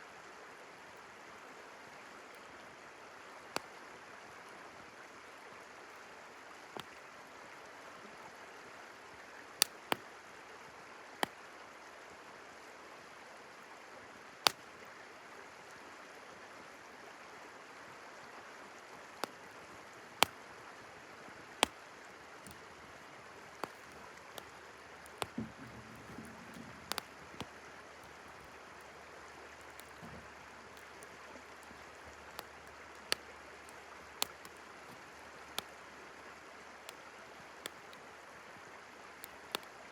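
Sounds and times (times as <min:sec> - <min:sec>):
river flowing: 0:00.0 - 0:39.9
campfire crackling and popping: 0:03.5 - 0:03.7, 0:06.8 - 0:07.0, 0:09.6 - 0:10.1, 0:14.4 - 0:14.7, 0:19.2 - 0:20.5, 0:21.5 - 0:38.2, 0:39.1 - 0:39.9.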